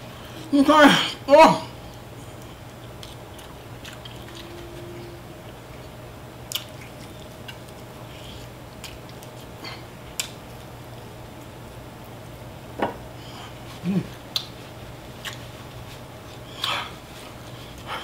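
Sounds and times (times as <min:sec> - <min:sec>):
faint steady hum: 0:00.0 - 0:18.0
person chewing chicken: 0:02.3 - 0:10.7
wet mouth clicks and smacks: 0:06.5 - 0:07.8, 0:10.2 - 0:10.4, 0:14.3 - 0:14.6.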